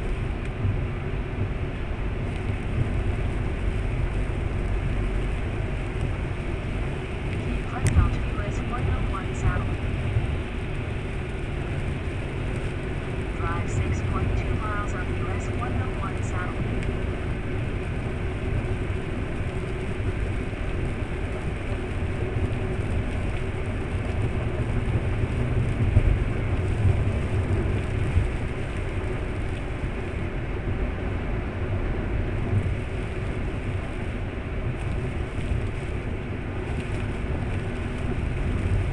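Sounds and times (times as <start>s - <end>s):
car engine hum: 0.0s - 38.9s
tyre noise on wet road: 0.0s - 38.9s.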